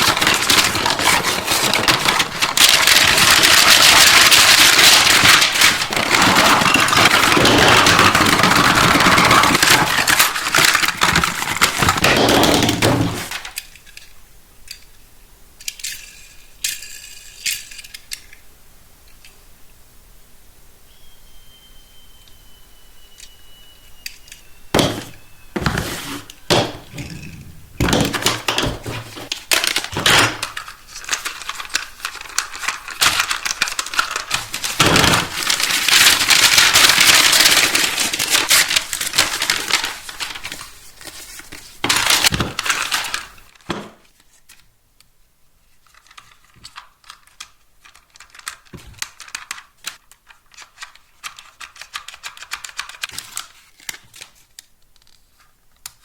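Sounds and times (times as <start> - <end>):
packaging tearing and rustling: 0.0 - 13.6, 24.4 - 44.6, 45.8 - 55.5
packaging clicking and cracking: 0.0 - 14.1, 24.0 - 43.7, 45.9 - 56.0
crinkling plastic and cardboard: 0.0 - 14.2, 23.9 - 44.8, 45.6 - 56.0.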